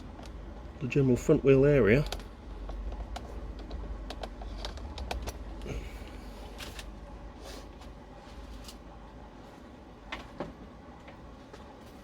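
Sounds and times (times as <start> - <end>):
low steady hum: 0.0 - 12.0
light clicks and taps: 2.0 - 5.4.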